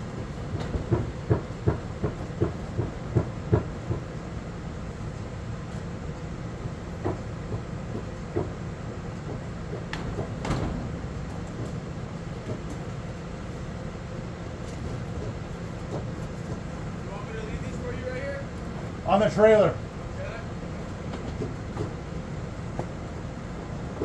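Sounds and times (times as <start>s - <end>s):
metal clanks and knocks: 9.9s - 11.8s.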